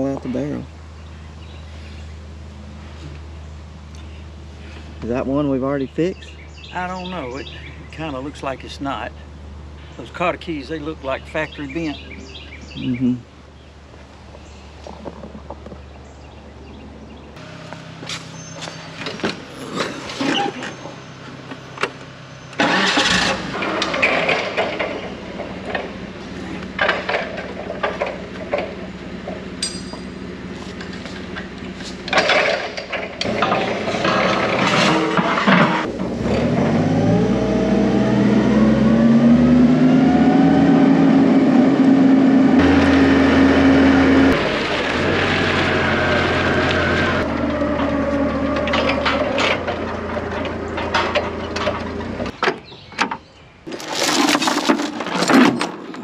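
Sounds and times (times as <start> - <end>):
engine starting and revving: 22.4 - 29.4, 32.1 - 52.4
metallic clanks and knocks: 26.7 - 30.2, 32.1 - 36.1, 47.8 - 53.2.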